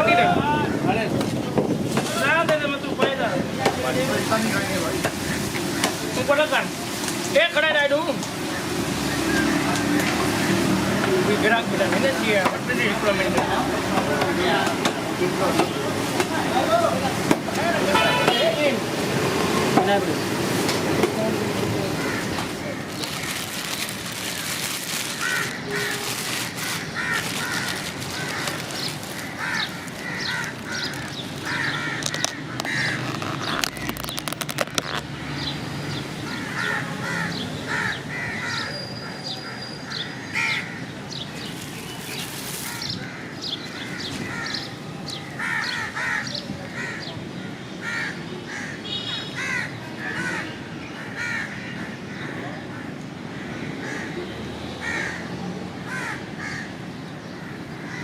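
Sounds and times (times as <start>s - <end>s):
crows cawing: 21.8s - 35.5s, 36.2s - 41.0s, 42.6s - 58.0s.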